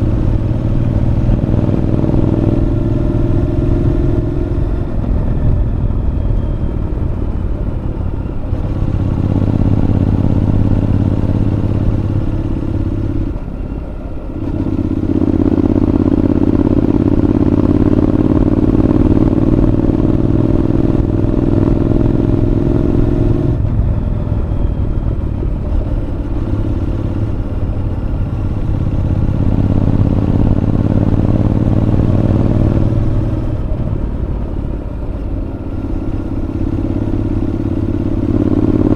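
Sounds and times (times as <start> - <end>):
motorcycle engine under way: 0.0 - 38.9.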